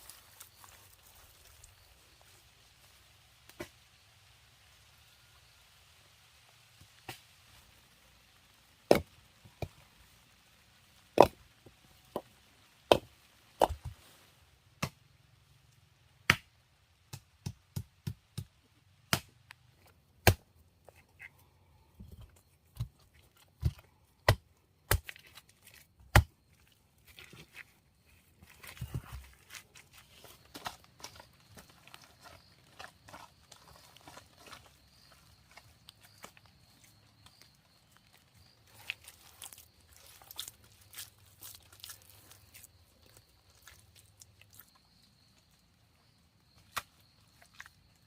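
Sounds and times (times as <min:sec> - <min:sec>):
wood being chopped: 0:08.9 - 0:09.7, 0:11.2 - 0:11.4, 0:12.9 - 0:13.9, 0:16.3 - 0:16.5, 0:19.1 - 0:19.3, 0:20.2 - 0:20.5, 0:23.6 - 0:26.4.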